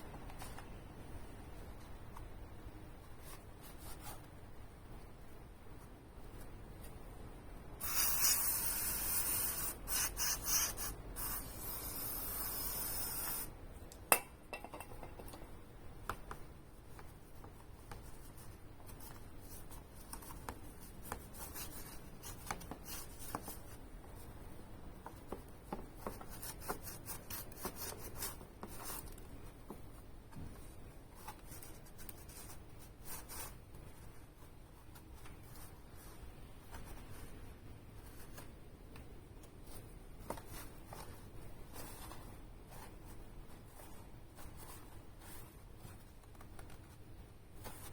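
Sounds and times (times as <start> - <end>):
aerosol spray hissing: 7.8 - 13.5.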